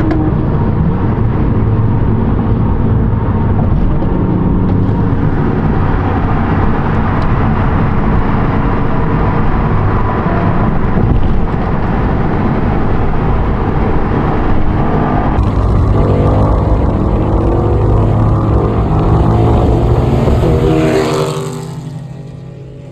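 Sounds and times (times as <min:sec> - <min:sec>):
car engine running: 0:15.4 - 0:22.9
road noise: 0:15.4 - 0:22.9.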